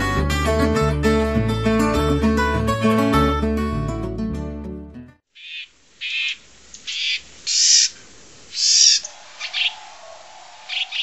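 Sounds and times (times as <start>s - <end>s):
bird harsh high-pitched calls: 5.3s - 11.0s.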